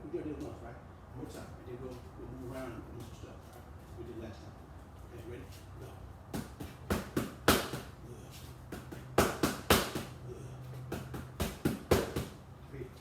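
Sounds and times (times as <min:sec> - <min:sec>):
boxing punches on padded target: 0:06.3 - 0:08.0, 0:08.6 - 0:10.2, 0:10.8 - 0:12.4.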